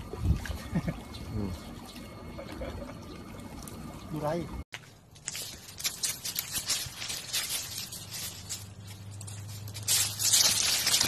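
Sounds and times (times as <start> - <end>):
dry leaves crackling and rustling: 4.7 - 11.0.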